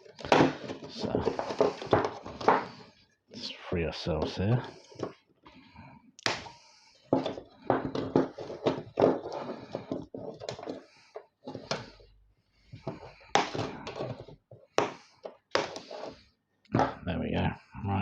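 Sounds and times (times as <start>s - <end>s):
knocks and scrapes of dismantling: 0.0s - 2.9s, 7.0s - 12.0s.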